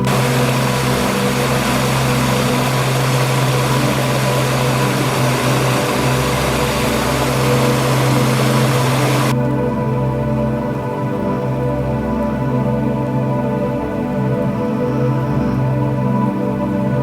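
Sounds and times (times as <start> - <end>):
waterfall rushing: 0.0 - 9.3
soft ambient music: 0.0 - 17.0.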